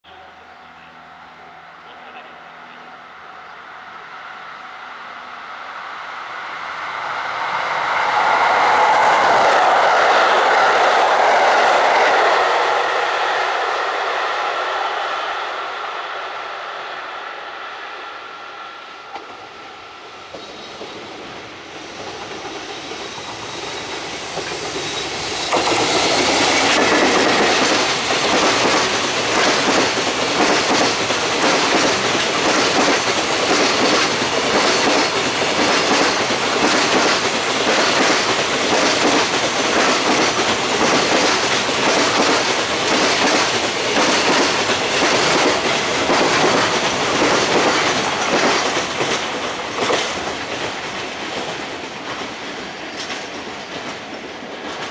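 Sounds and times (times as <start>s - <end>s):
freight train passing: 0.0s - 54.9s
distant train passing: 0.1s - 54.9s.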